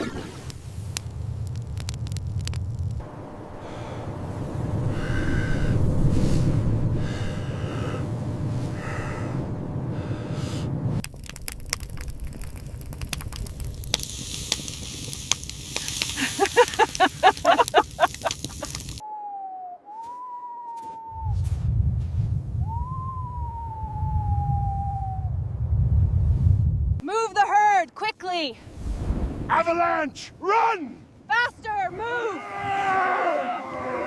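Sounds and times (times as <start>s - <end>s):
fire crackling: 0.0s - 19.0s, 28.6s - 30.4s
low wind rumble: 0.0s - 19.1s, 21.1s - 27.0s, 28.5s - 34.0s
wolf howling: 32.4s - 34.0s.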